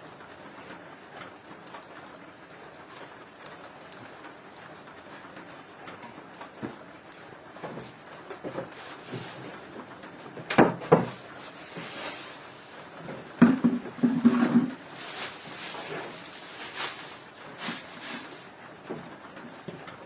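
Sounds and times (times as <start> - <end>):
scraping handling sounds: 7.8 - 9.7, 10.9 - 18.6
clattering knocks: 13.4 - 14.8.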